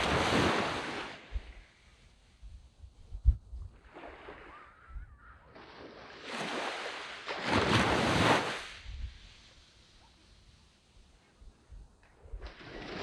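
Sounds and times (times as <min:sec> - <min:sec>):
waves washing up on beach: 0:00.0 - 0:01.8, 0:05.5 - 0:11.3
wind thumps on microphone: 0:01.2 - 0:01.6, 0:02.4 - 0:03.9.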